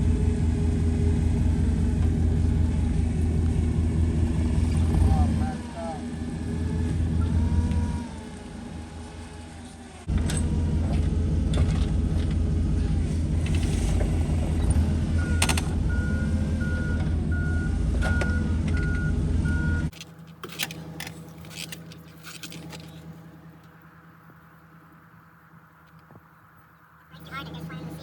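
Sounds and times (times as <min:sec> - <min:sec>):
forklift engine running: 0:00.0 - 0:28.0
reversing alarm beeping: 0:05.5 - 0:08.8, 0:15.2 - 0:19.9.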